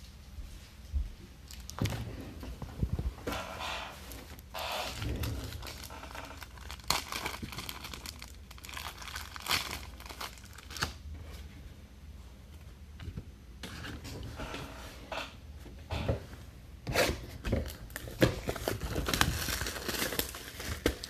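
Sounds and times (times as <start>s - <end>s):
plastic wrapping crinkling and tearing: 1.5s - 1.8s, 3.8s - 11.0s, 17.6s - 21.0s.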